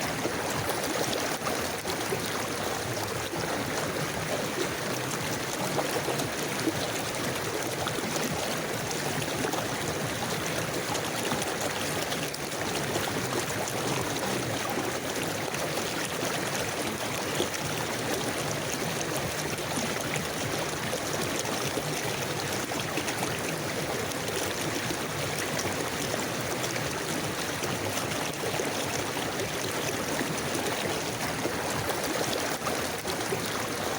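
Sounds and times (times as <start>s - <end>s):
river flowing: 0.0s - 33.9s.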